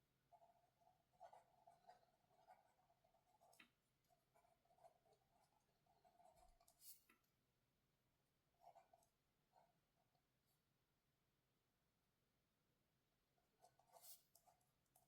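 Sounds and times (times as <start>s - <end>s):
pencil writing on paper: 0.2s - 7.1s, 8.5s - 10.2s, 13.4s - 15.0s.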